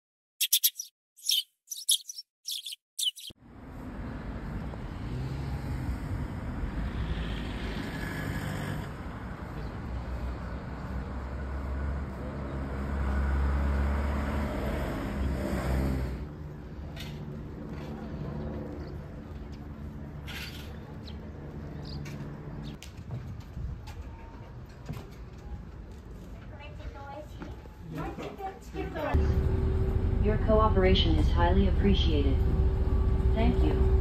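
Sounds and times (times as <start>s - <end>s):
sharp bird chirps: 0.4s - 3.4s
road traffic rumble: 1.3s - 27.6s, 28.4s - 34.0s
vehicle passing: 3.1s - 20.2s.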